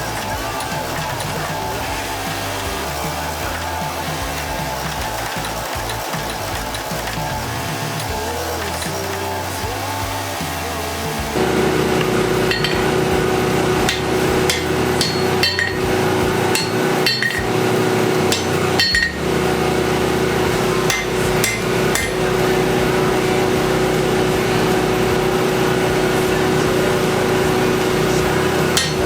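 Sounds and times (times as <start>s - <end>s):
steady hum: 0.0s - 29.0s
hammer striking steel on anvil: 11.5s - 19.4s, 20.4s - 23.4s, 28.6s - 29.0s.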